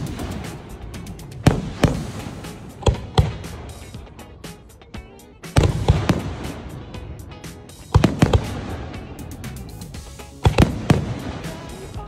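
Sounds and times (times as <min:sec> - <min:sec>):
firework bangs: 0:00.0 - 0:04.0, 0:05.6 - 0:07.0, 0:07.9 - 0:09.4, 0:10.4 - 0:11.9
firework crackling: 0:00.0 - 0:04.1, 0:05.6 - 0:12.0
music: 0:00.0 - 0:12.0.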